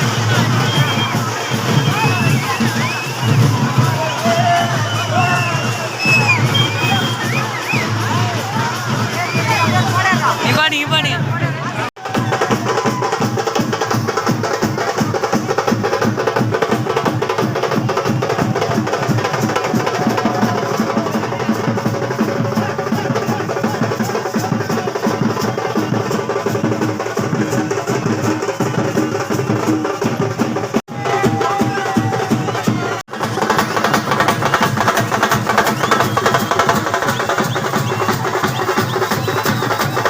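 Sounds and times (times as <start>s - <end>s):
fast dense drumming: 0.0s - 40.0s
sharp clicking percussion: 33.1s - 40.0s.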